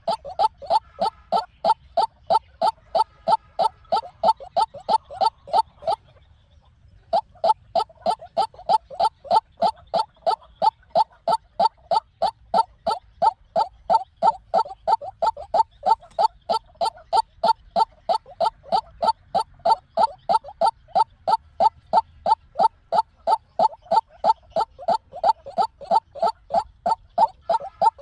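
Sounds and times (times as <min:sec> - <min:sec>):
bird calling short repeated notes: 0:07.2 - 0:28.0.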